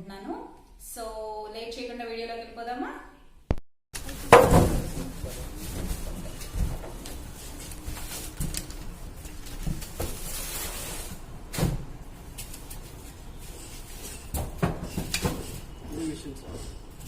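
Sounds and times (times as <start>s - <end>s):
handling knocks and bumps: 4.0s - 8.8s.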